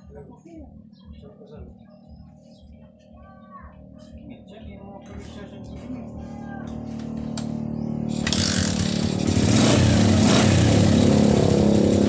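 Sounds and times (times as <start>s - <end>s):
motorcycle engine running: 4.1s - 12.0s.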